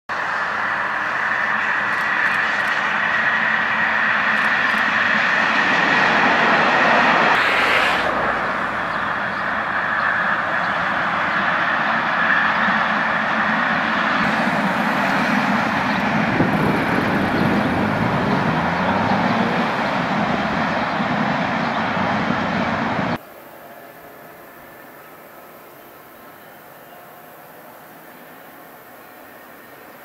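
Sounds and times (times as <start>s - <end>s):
train rolling past: 0.1s - 30.0s
low hum rising in pitch: 14.2s - 23.1s.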